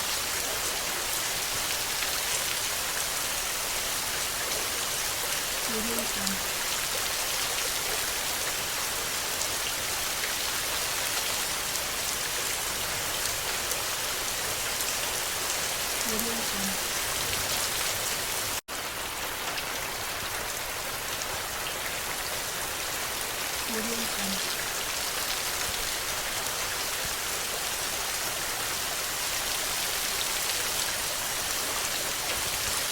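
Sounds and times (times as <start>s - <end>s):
rain on a hard surface: 0.0s - 32.9s.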